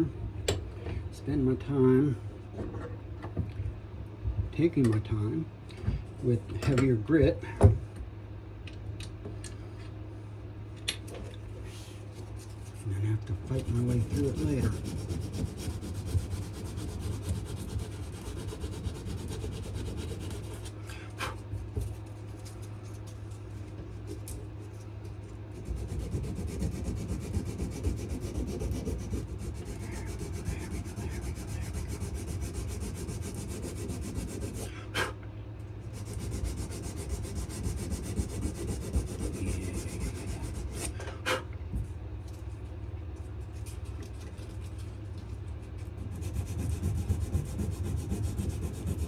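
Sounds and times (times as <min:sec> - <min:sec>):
sandpaper rubbing on wood: 0:12.5 - 0:22.6, 0:25.5 - 0:35.1, 0:35.9 - 0:40.9, 0:46.0 - 0:49.0.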